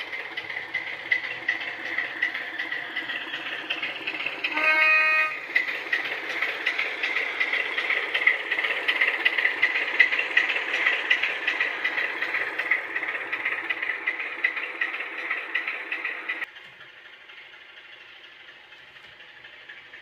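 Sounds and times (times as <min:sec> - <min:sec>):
diesel engine running: 0:00.0 - 0:20.0
locomotive horn blast: 0:04.5 - 0:05.4.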